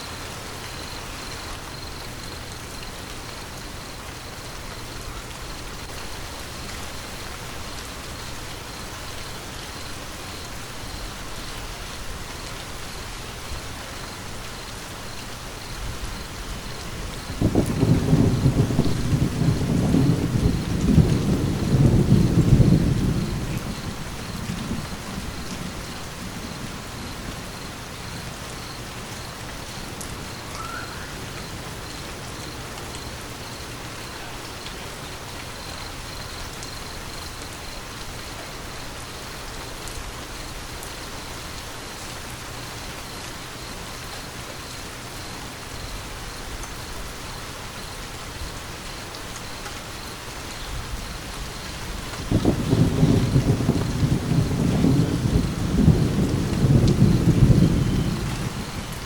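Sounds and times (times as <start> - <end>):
steady rain: 0.0 - 59.0
thunder rumbling: 15.5 - 33.2, 50.7 - 59.0.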